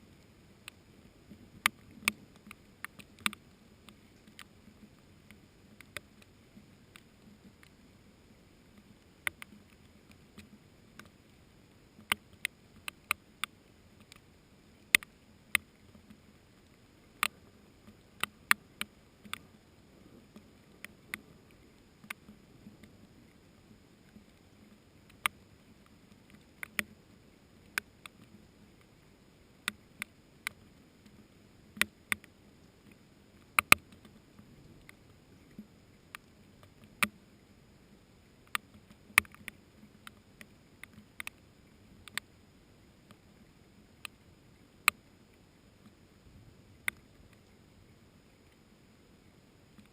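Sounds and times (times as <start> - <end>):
light rain hiss: 0.0 - 49.9.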